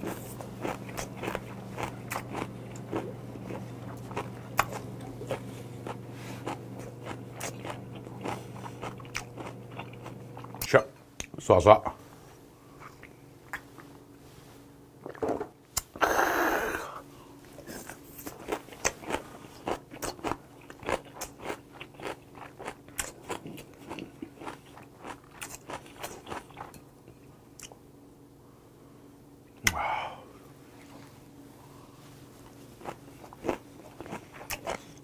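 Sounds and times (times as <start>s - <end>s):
wet chewing clicks: 0.0s - 10.7s, 18.2s - 26.8s, 32.8s - 35.0s.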